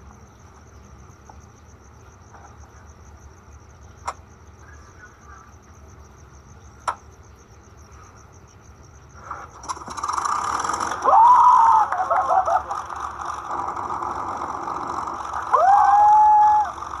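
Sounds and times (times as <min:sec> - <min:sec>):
crickets chirping: 0:00.0 - 0:17.0
sharp clicks: 0:04.0 - 0:04.2, 0:06.8 - 0:07.0, 0:09.2 - 0:17.0
loud mechanical noise: 0:07.9 - 0:17.0.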